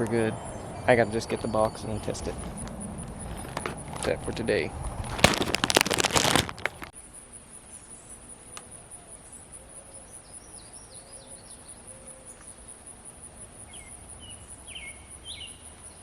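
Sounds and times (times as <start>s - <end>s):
loud rustling: 2.0s - 6.9s.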